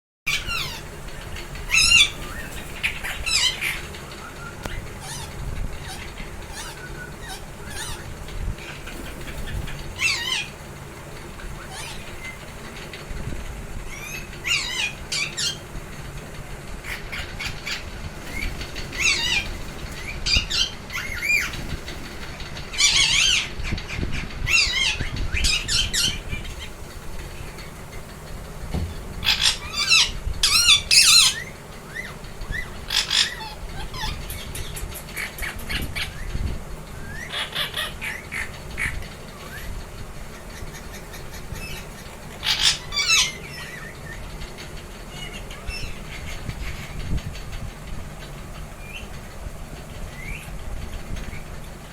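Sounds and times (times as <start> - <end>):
parrots squawking: 0.3 - 10.7, 11.3 - 12.8, 13.9 - 15.8, 16.8 - 28.2, 29.0 - 36.3, 37.0 - 39.7, 40.4 - 44.2.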